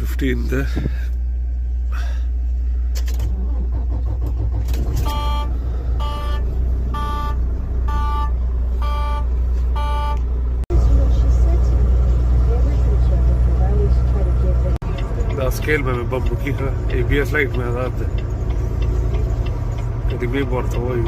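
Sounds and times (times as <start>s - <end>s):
truck cab engine drone: 0.0s - 21.0s
electronic warning beep: 5.0s - 6.4s, 7.0s - 10.2s.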